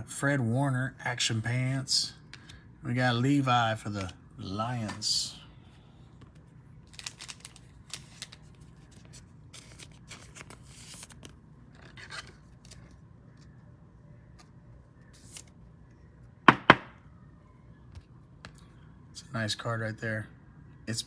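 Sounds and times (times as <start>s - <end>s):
paper cards sliding and flicking: 15.1s - 15.5s.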